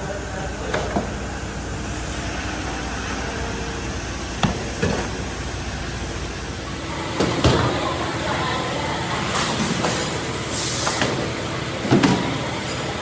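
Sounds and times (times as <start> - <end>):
factory machinery noise: 0.0 - 13.0.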